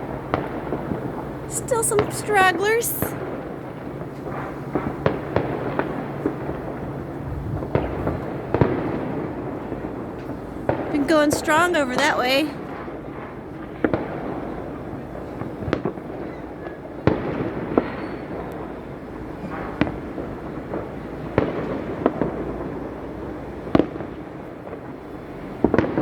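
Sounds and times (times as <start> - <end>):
distant fireworks bursts: 1.5 - 3.2, 10.6 - 12.8
fireworks bangs: 1.5 - 3.2, 10.7 - 12.6.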